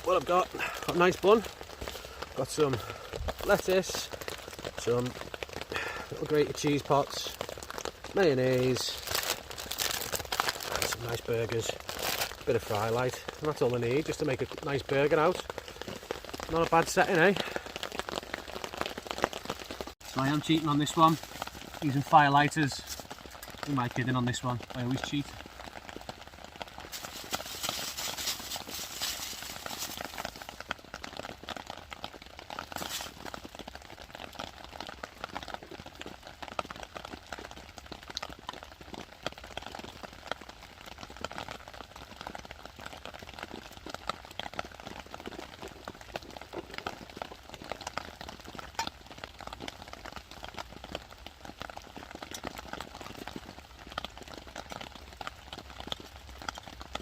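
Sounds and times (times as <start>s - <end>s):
rain pattering on shelter: 0.0s - 57.0s
rustling hiss: 26.8s - 30.6s, 32.7s - 33.4s.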